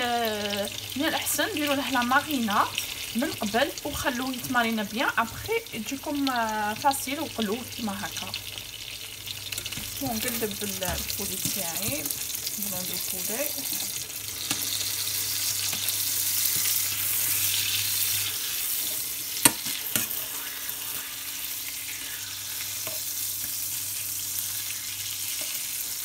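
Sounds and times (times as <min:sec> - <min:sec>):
meat sizzling in a frying pan: 0:00.0 - 0:26.0
metal tongs clacking on pan: 0:19.4 - 0:20.2.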